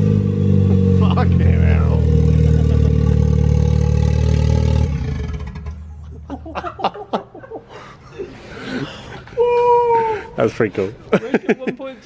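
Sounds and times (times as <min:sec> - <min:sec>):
car engine running loudly: 0:00.0 - 0:06.2.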